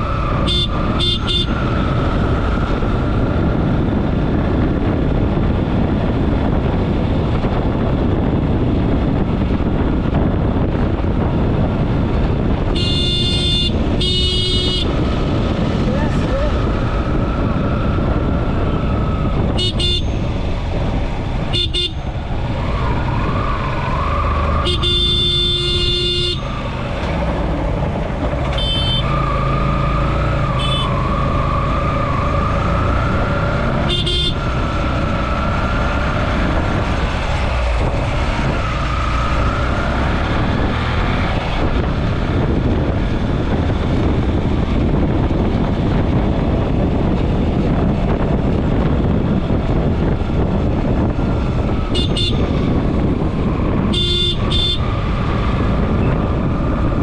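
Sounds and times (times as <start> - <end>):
loud rushing roar: 0.0 - 57.0
vehicle horns honking: 0.4 - 1.8, 12.7 - 15.0, 19.5 - 20.3, 21.5 - 22.1, 24.6 - 26.6, 28.5 - 29.2, 30.6 - 31.0, 33.8 - 34.5, 51.9 - 52.6, 53.8 - 54.9.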